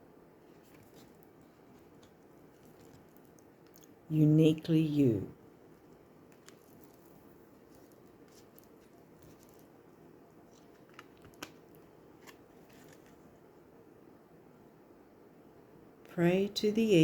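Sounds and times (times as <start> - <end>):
cards clicking and tapping: 10.6 - 13.1.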